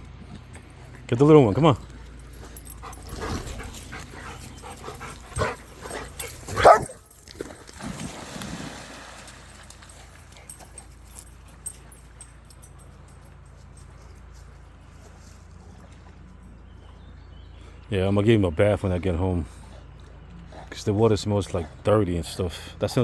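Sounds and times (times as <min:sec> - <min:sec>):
dog giving high calls: 0:05.4 - 0:07.0.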